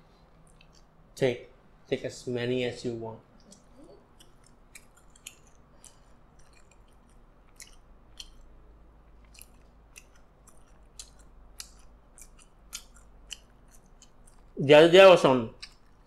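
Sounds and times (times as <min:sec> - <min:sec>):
person chewing food: 0:00.3 - 0:01.0, 0:03.4 - 0:14.6, 0:15.5 - 0:16.0.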